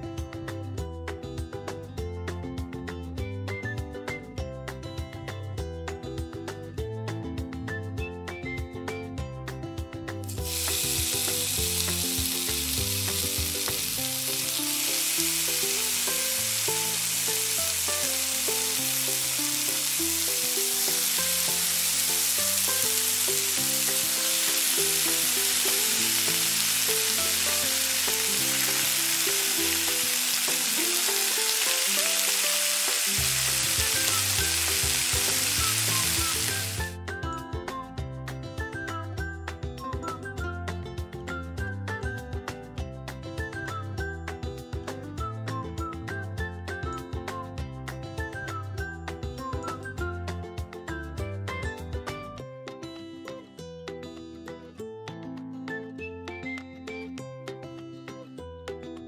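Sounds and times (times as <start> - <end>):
soft background music: 0.0 - 59.0
vegetables sizzling in a pan: 10.3 - 37.0.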